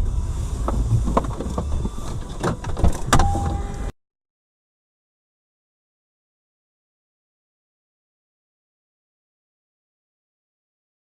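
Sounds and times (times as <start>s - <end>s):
car rumbling on the road: 0.0s - 3.9s
steady tone: 3.1s - 3.9s.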